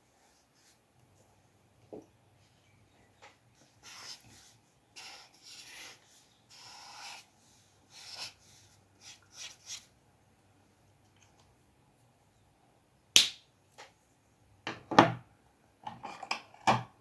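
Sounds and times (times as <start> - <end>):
drawing tool scratching paper: 3.8 - 7.3.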